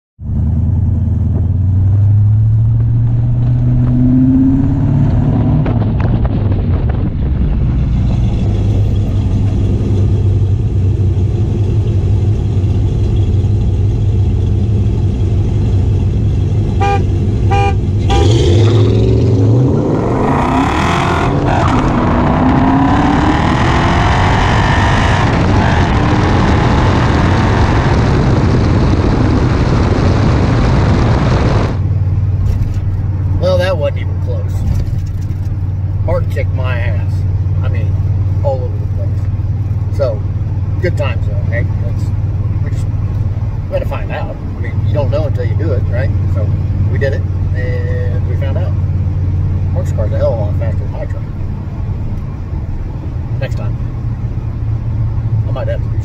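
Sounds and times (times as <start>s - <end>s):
car engines revving: 0.2s - 56.0s
horn toots: 16.7s - 19.4s.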